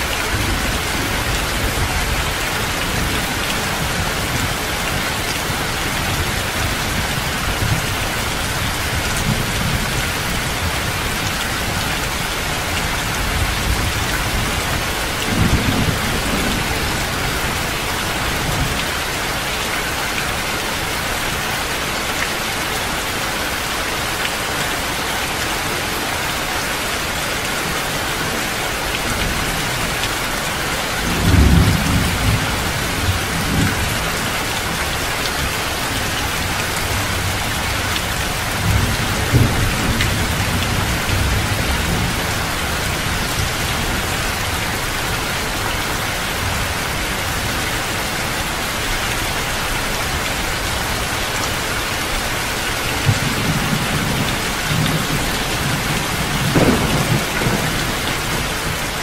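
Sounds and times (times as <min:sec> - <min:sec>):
heavy rain falling: 0:00.0 - 0:59.0
thunder rumbling: 0:53.0 - 0:59.0.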